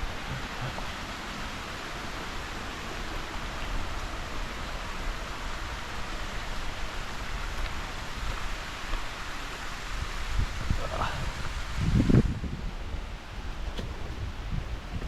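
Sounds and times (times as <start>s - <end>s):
waterfall rushing hiss: 0.0s - 13.7s.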